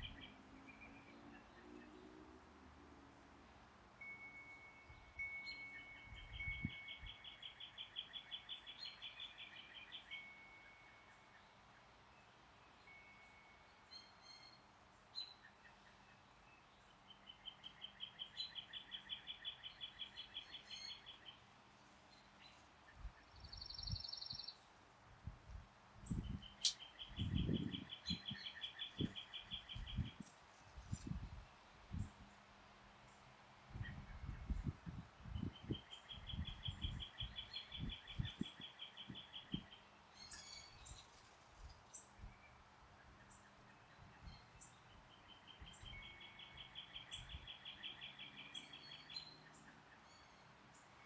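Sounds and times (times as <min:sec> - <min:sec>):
wind chimes ringing: 0:04.0 - 0:07.1
wind buffeting microphone: 0:25.2 - 0:32.2, 0:33.7 - 0:39.6
songbird trilling: 0:26.2 - 0:30.1.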